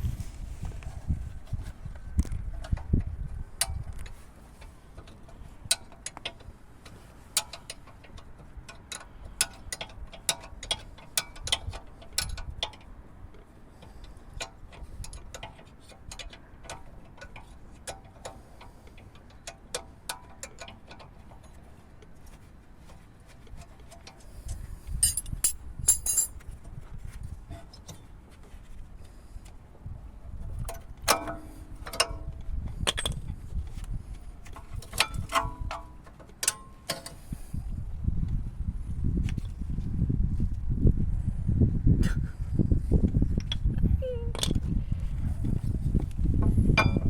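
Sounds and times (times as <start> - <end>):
metallic clicks of hand tools: 25.0 - 26.4.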